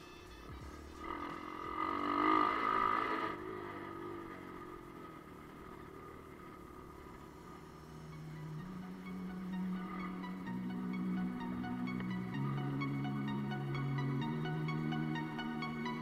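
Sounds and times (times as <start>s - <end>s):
motorbike engine revving: 0.6s - 11.5s.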